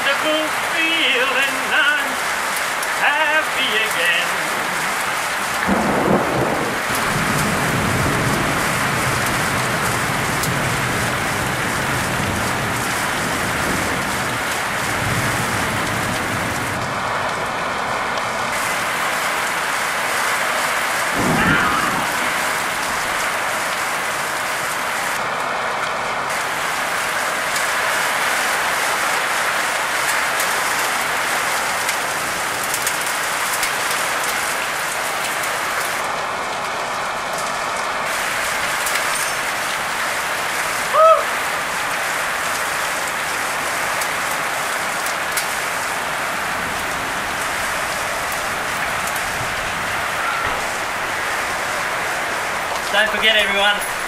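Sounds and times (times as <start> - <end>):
heavy rain: 0.0 - 54.0
thunder rumbling: 4.6 - 25.2, 45.7 - 54.0.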